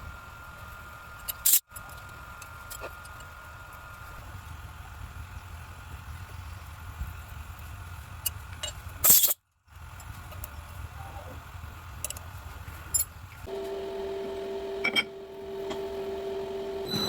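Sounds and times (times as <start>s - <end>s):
steady low hum: 9.9s - 17.0s.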